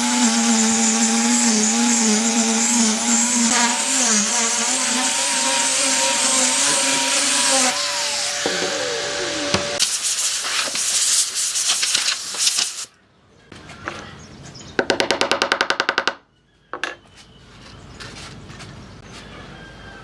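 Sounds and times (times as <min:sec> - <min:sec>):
power tool cutting wood: 0:00.0 - 0:09.8.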